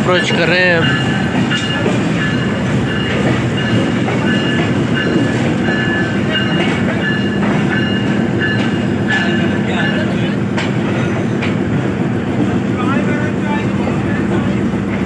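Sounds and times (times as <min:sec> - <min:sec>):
high wheel squeals: 0:00.0 - 0:11.6
train wheels rumbling: 0:00.0 - 0:15.0.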